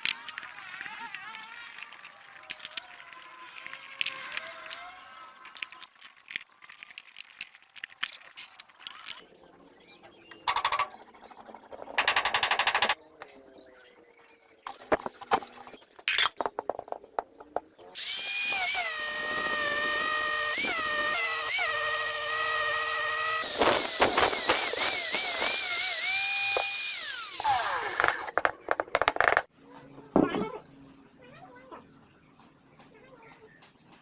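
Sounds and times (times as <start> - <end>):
power tool whining: 17.8 - 28.9.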